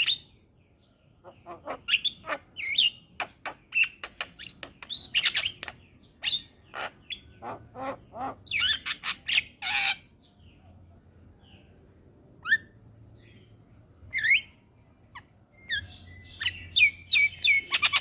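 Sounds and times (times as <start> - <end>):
bird singing whistles and squawks: 0.0 - 0.4, 1.8 - 10.0, 12.4 - 12.8, 14.1 - 14.6, 15.2 - 18.0.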